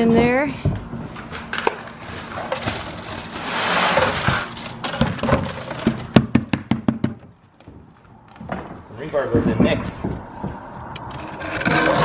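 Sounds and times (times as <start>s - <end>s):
wet concrete sliding: 2.0s - 4.8s.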